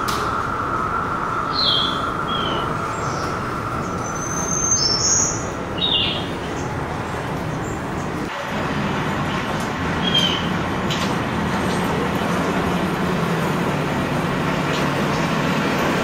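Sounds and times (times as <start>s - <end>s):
birds chirping: 0.0s - 15.9s
steady rumbling background: 0.0s - 16.0s.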